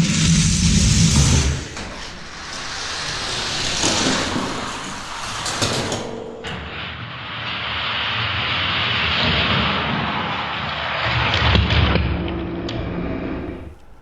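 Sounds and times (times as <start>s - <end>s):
toy cars rolling on plastic track: 0.0s - 6.0s.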